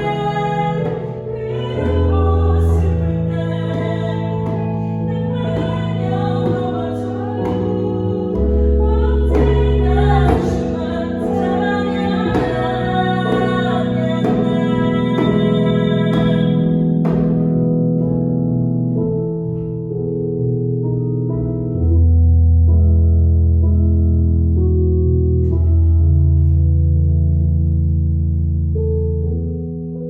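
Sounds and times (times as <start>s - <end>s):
woman singing: 0.0s - 17.4s
sustained instrumental chords: 0.0s - 30.0s
djembe strokes: 2.8s - 17.4s.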